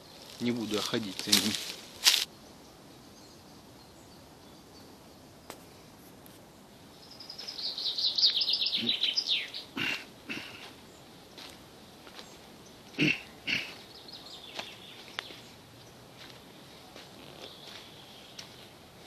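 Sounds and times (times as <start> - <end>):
songbird singing rapid high notes: 7.0 - 10.2.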